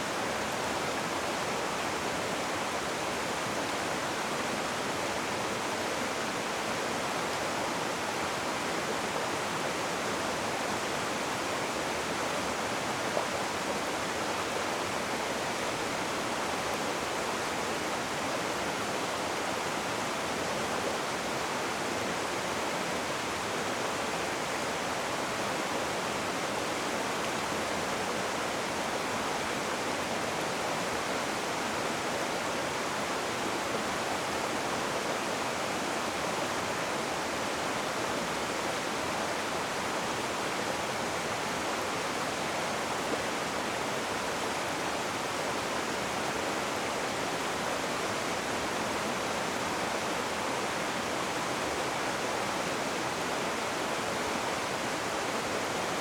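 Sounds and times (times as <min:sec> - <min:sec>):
rushing water: 0:00.0 - 0:56.0.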